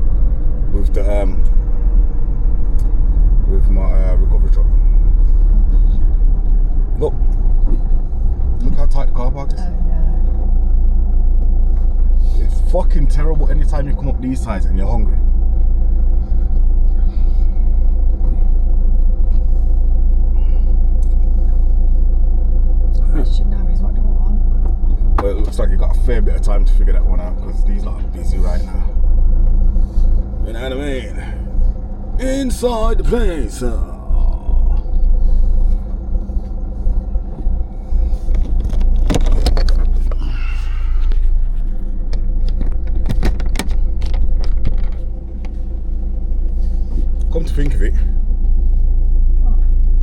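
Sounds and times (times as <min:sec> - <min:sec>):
truck engine running: 0:00.0 - 0:50.0
sharp clicks and rattles: 0:34.7 - 0:40.2, 0:41.0 - 0:47.9.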